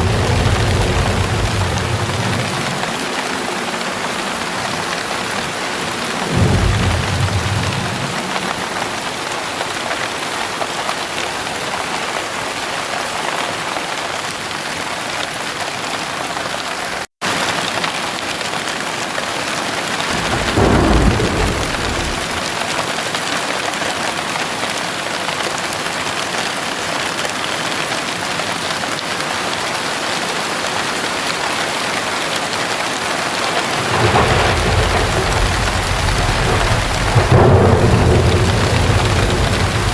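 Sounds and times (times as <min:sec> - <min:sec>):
thunder rumbling: 0:00.0 - 0:09.3, 0:20.0 - 0:22.7, 0:33.5 - 0:39.9
heavy rain falling: 0:00.0 - 0:39.9.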